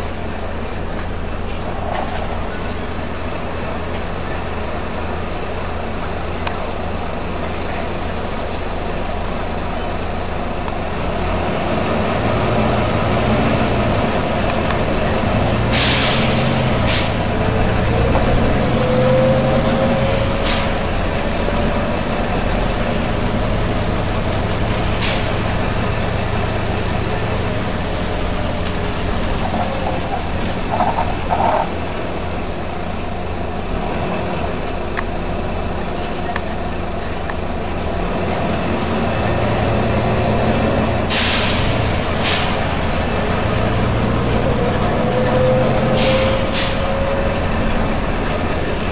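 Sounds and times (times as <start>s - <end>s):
bus diesel engine running: 0.0s - 48.9s
compressed air hiss: 15.7s - 17.3s, 41.1s - 42.7s, 45.9s - 46.8s.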